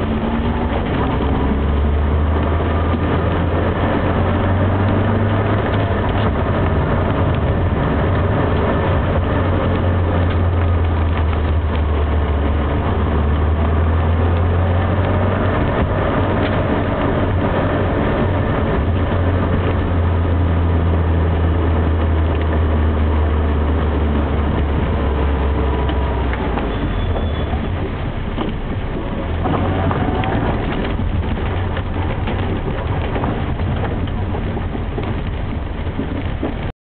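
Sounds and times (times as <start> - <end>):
car engine drone: 0.0 - 36.7
road noise: 0.0 - 36.7.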